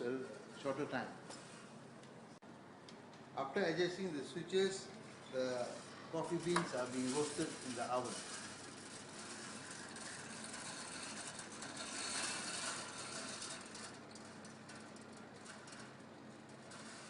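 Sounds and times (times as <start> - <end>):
steady hiss: 3.7 - 13.7
coffee beans rattling in roaster: 4.6 - 17.0.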